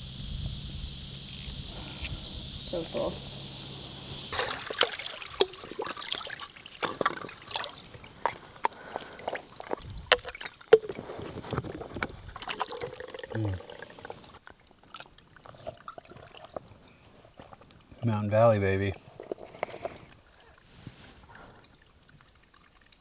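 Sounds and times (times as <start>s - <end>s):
high insect drone: 0.0s - 23.0s
splashing steps in water: 1.4s - 16.9s.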